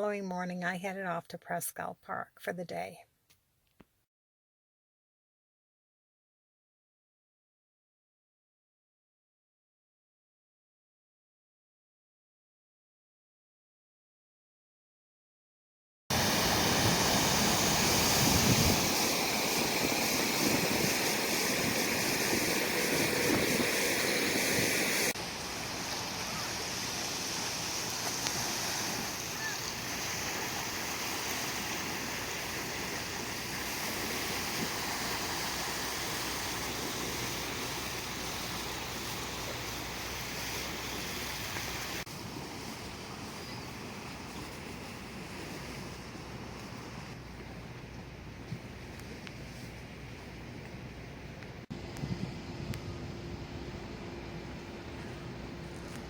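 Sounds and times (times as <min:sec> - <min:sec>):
strong wind: 0:16.1 - 0:39.4, 0:51.6 - 0:56.0
waves washing onto shore: 0:16.1 - 0:47.5.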